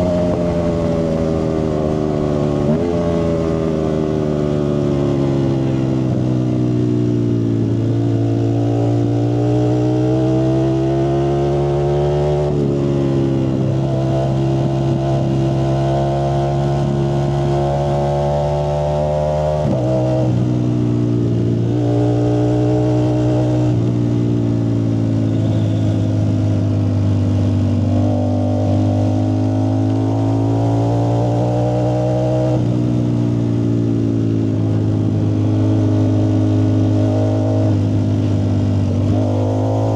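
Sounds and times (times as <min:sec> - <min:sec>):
motorcycle engine revving: 0:00.0 - 0:06.8, 0:28.0 - 0:39.9.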